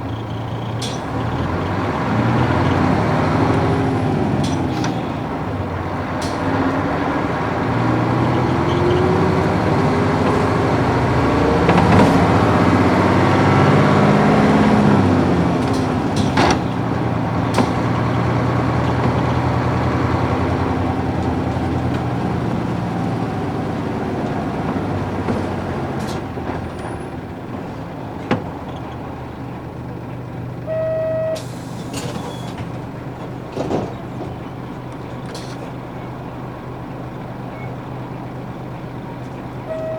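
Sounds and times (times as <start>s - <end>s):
bus diesel engine changing gears: 0.0s - 39.9s
short electronic beep: 30.7s - 31.5s, 39.7s - 39.9s.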